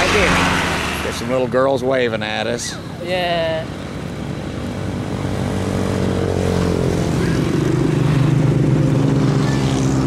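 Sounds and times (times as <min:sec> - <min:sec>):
motorcycle engine running: 0:04.1 - 0:10.0.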